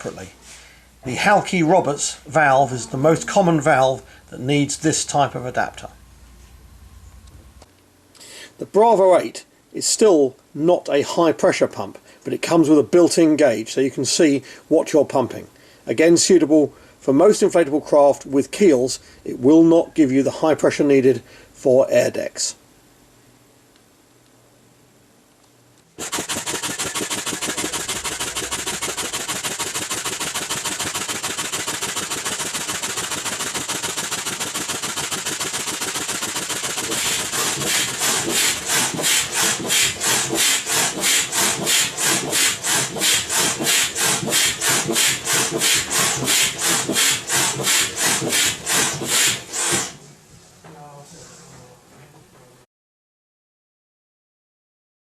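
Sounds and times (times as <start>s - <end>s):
foot pump hissing air: 26.0s - 50.0s.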